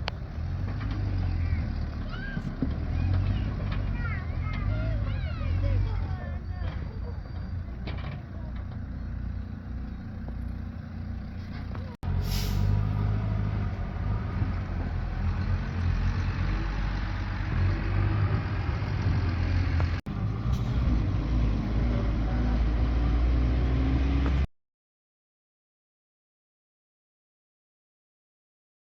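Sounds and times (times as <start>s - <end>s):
vehicle engine running: 0.0s - 24.5s
short hiss: 12.2s - 12.8s.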